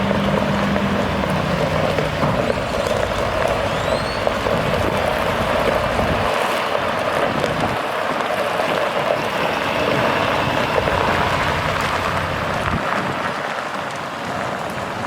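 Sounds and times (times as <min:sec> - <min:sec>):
low rumble: 0:00.0 - 0:07.8, 0:09.1 - 0:13.3
dump truck engine hum: 0:00.0 - 0:15.0.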